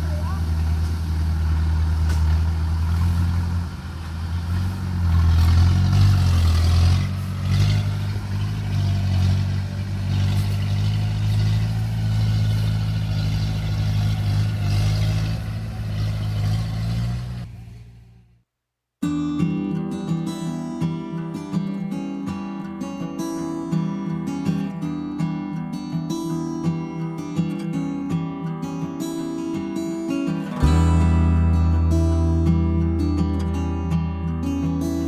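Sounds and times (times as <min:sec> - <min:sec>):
large engine running: 0:00.0 - 0:18.2, 0:30.4 - 0:35.0.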